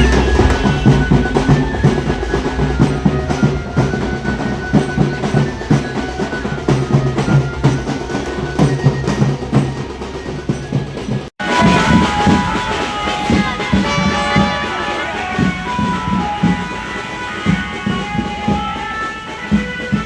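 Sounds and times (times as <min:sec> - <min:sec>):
fast rhythmic drumming music: 0:00.0 - 0:20.0.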